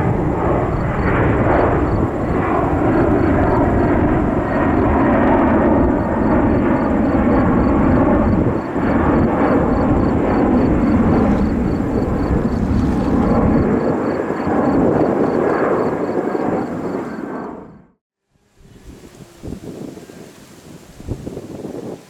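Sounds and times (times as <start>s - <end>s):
jet engines rumbling loudly: 0.0s - 17.3s.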